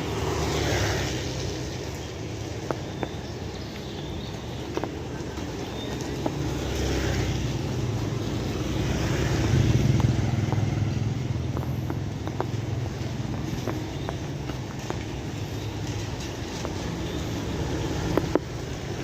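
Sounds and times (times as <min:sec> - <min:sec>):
steady rain falling: 0:00.0 - 0:19.0
drip-like taps: 0:02.6 - 0:03.3, 0:11.4 - 0:15.1.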